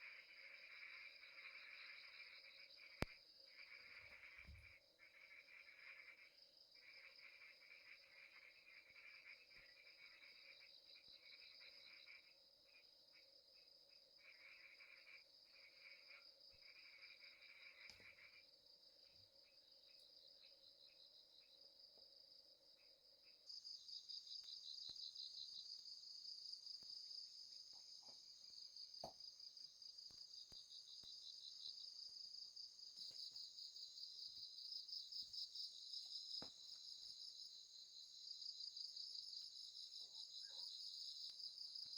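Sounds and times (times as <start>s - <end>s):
low pulsing insect call: 0.0s - 41.9s
faint clicks: 17.8s - 18.2s.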